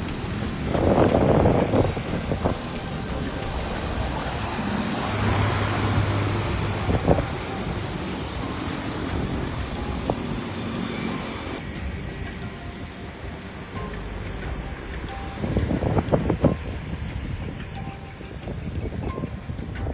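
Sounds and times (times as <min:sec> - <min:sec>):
vehicle engine running: 0:00.0 - 0:11.6
wind buffeting microphone: 0:00.0 - 0:19.9.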